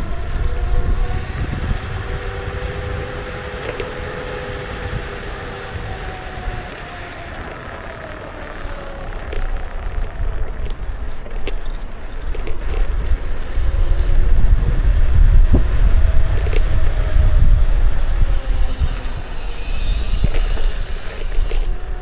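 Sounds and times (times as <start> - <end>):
faint gliding whine: 0.0 - 22.0
wind rumbling on microphone: 0.0 - 22.0
rattling clicks: 5.3 - 14.1.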